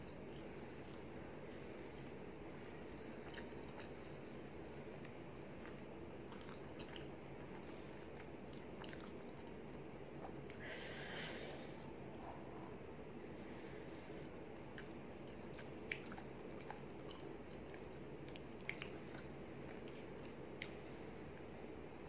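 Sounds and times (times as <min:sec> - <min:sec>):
person chewing: 0:00.0 - 0:09.6, 0:14.8 - 0:20.8
short breathy hiss: 0:10.6 - 0:11.8.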